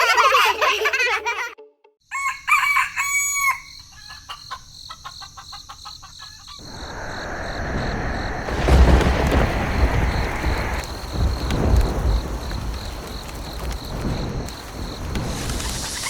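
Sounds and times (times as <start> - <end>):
rooster crowing: 2.1 - 4.5
chicken clucking: 2.5 - 6.7
rushing rumbling noise: 6.6 - 16.0.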